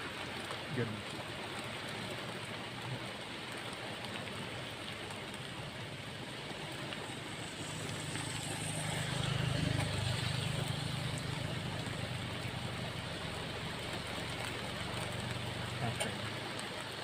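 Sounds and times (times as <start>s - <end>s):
rain falling: 0.0s - 17.0s
low engine drone: 4.8s - 16.6s.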